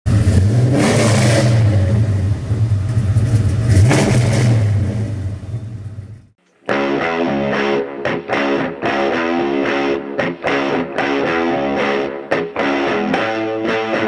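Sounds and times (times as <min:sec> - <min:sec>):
car engine revving: 0:00.0 - 0:06.3.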